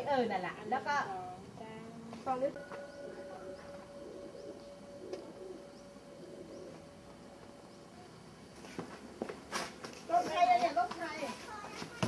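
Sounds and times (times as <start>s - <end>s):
faint birdsong: 0.0s - 9.2s
dove cooing: 2.5s - 8.3s.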